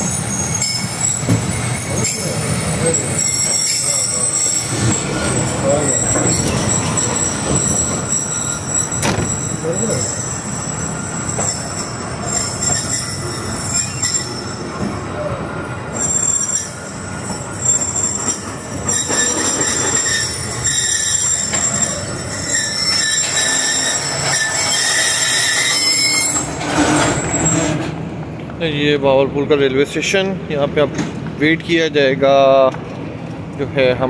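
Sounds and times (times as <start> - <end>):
train wheel squeal: 0.0 - 28.0
train rumbling: 0.0 - 31.9.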